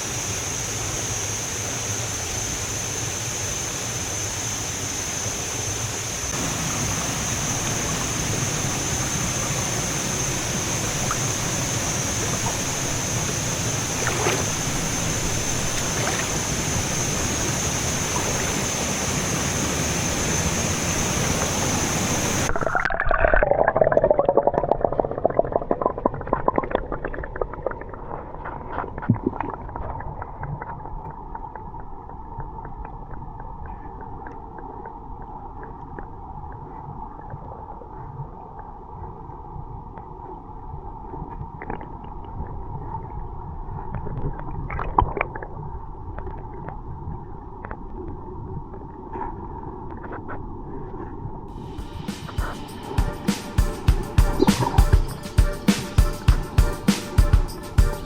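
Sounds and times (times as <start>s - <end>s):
high-pitched whine: 0.0s - 22.9s, 51.5s - 58.0s
waterfall rushing: 6.4s - 22.6s
muffled underwater gurgling: 6.4s - 53.2s.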